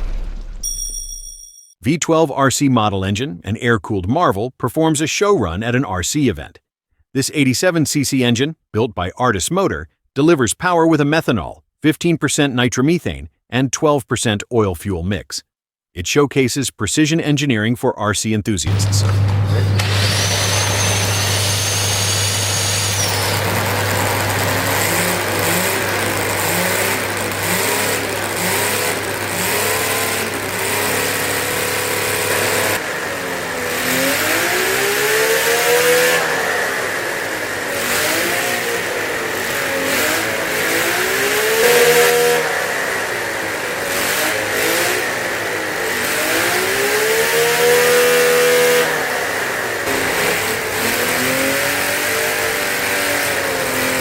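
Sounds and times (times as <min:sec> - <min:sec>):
model engine revving: 0:18.7 - 0:54.0.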